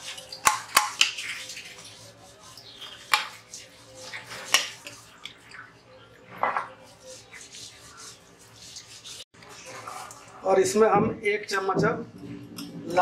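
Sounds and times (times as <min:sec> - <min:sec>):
spoon scraping a strainer: 0:06.5 - 0:10.3.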